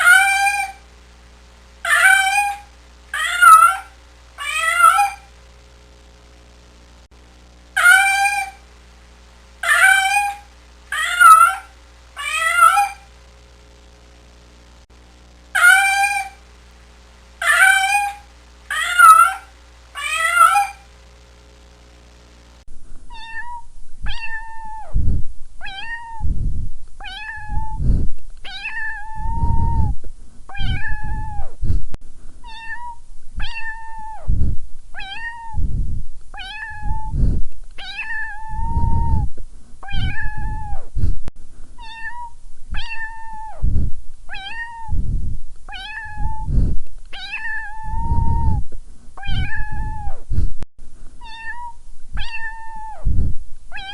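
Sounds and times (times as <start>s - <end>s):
cat meowing: 0.0s - 0.8s, 1.9s - 5.3s, 7.8s - 8.6s, 9.6s - 13.1s, 15.6s - 16.4s, 17.4s - 20.9s, 23.1s - 24.9s, 25.6s - 26.3s, 27.0s - 27.8s, 28.4s - 29.9s, 30.5s - 31.5s, 32.4s - 34.2s, 35.0s - 35.6s, 36.4s - 37.2s, 37.8s - 40.8s, 41.8s - 43.6s, 44.3s - 45.0s, 45.7s - 46.5s, 47.1s - 48.6s, 49.2s - 50.2s, 51.2s - 53.1s.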